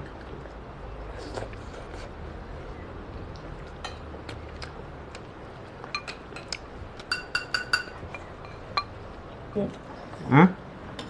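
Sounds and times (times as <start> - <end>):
utensils clinking against bowls: 6.0 - 9.0.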